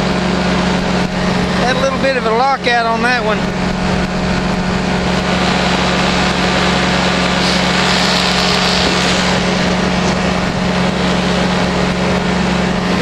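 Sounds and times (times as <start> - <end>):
constant rushing noise: 0.0 - 13.0
engine and propeller running: 0.0 - 13.0.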